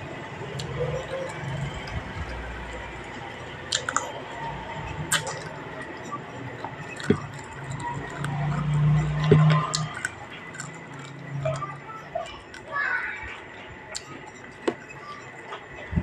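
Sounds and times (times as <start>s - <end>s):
person chewing food: 3.7s - 4.2s, 4.9s - 12.7s, 13.9s - 15.6s.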